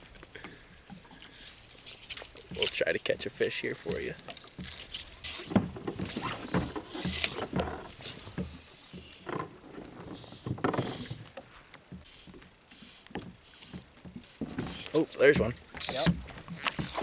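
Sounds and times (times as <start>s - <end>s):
knocks and scrapes on kayak hull: 3.8s - 17.0s.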